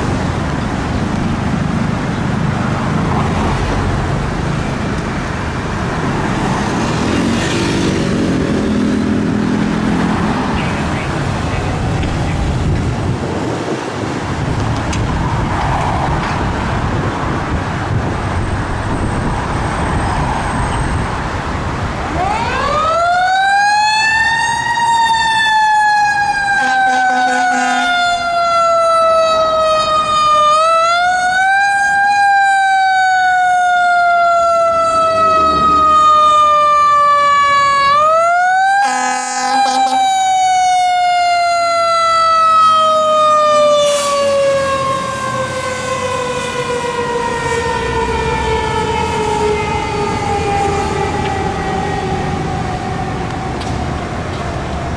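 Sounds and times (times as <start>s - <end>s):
heavy truck engine: 0.0s - 15.4s
short horn blasts: 26.6s - 28.0s, 38.8s - 40.0s.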